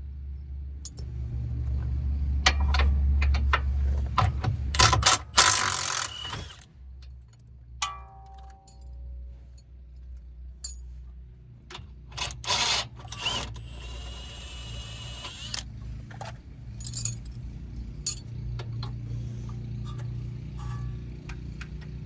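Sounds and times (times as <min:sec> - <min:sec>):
metal tools clinking: 0:10.6 - 0:11.0, 0:16.7 - 0:17.4, 0:18.0 - 0:18.4, 0:19.8 - 0:21.0.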